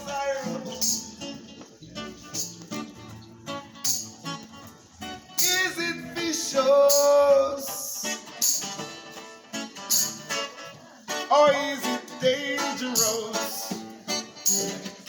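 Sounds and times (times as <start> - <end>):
man singing: 0.0 - 1.4, 5.4 - 8.4, 11.1 - 15.0
strummed acoustic guitar: 0.0 - 15.0.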